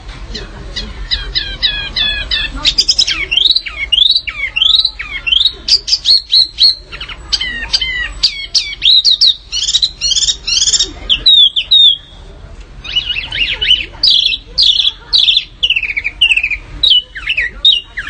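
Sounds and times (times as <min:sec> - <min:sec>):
songbirds singing: 0:00.0 - 0:18.0.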